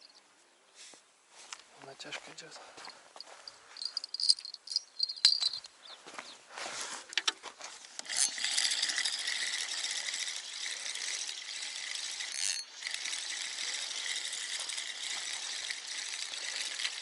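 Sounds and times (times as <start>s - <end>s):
fishing reel cranking whirr: 8.0s - 17.0s.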